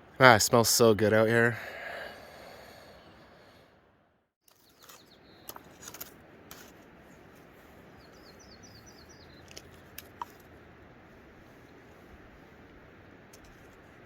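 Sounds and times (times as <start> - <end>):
small bird chirping: 4.5 - 5.8, 7.9 - 9.9.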